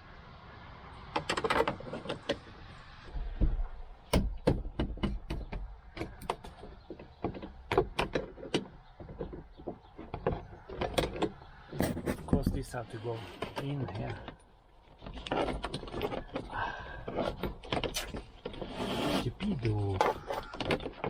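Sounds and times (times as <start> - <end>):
hand tool clicking and knocking: 3.4 - 12.6.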